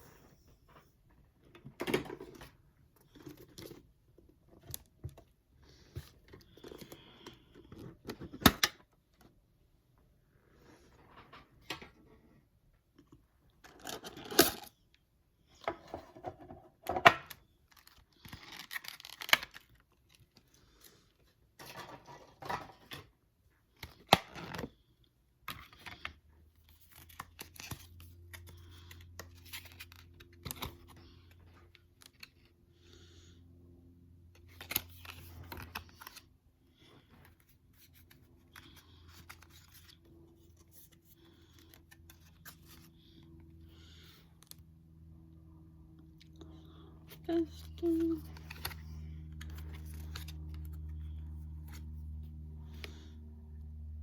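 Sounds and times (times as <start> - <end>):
faint low hum: 0.0 - 54.0
foil wrapper crinkling and tearing: 17.7 - 19.9
cards rustling and tapping: 25.4 - 32.5, 34.4 - 36.2, 46.7 - 53.0.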